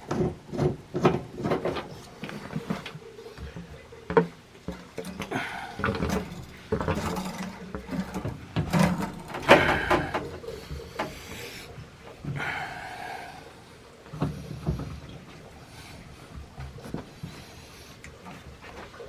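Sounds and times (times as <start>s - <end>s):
tools and metal parts knocking: 4.7s - 11.2s.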